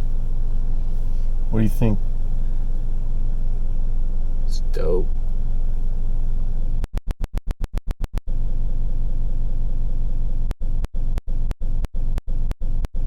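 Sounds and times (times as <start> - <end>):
car engine idling: 0.0 - 6.9, 8.3 - 12.8.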